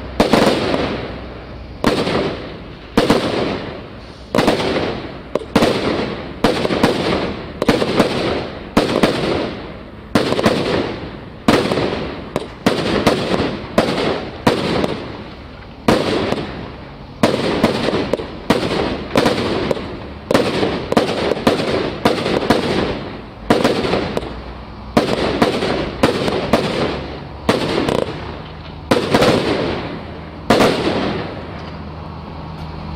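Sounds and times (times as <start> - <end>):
fireworks bangs: 0.0 - 31.8.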